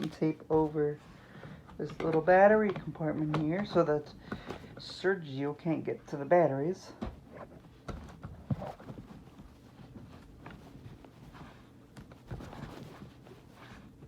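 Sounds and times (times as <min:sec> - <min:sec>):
tape rustling: 0:07.0 - 0:14.0.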